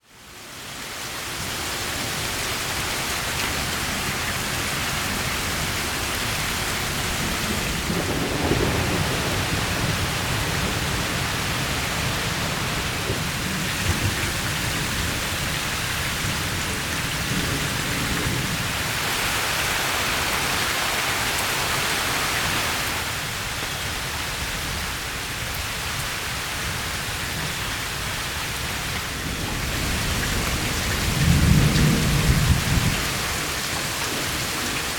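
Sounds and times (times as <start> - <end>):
heavy rain falling: 0.1 - 34.9
low rumble of thunder: 5.3 - 19.2, 28.6 - 34.9.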